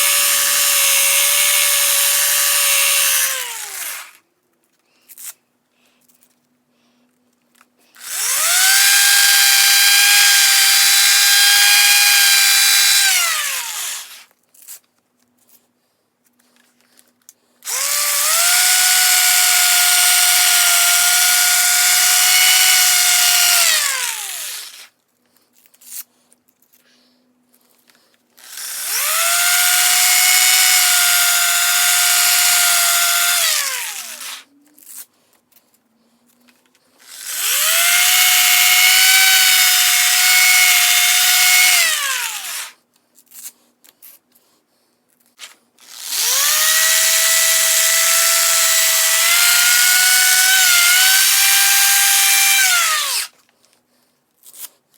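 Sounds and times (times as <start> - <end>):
power tool motor whining: 0.0 - 4.2, 8.0 - 14.3, 17.7 - 24.9, 28.4 - 34.4, 37.0 - 42.8, 45.4 - 53.3.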